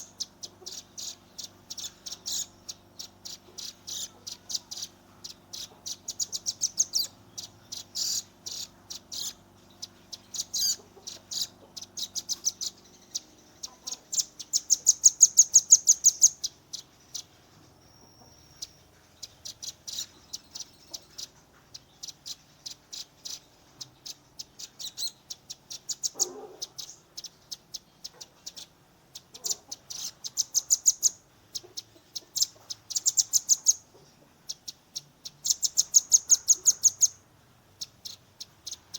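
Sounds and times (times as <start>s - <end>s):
bird whistle: 0.0s - 4.1s, 5.6s - 9.4s
bird singing fast trills: 0.0s - 38.9s.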